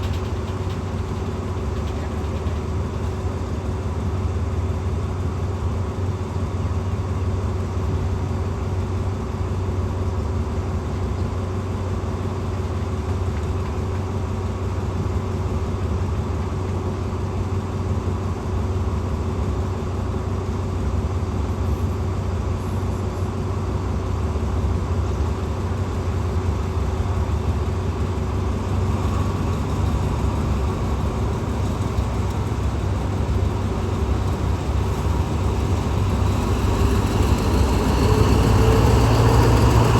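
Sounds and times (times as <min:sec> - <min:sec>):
diesel train engine idling: 0:00.0 - 0:39.9.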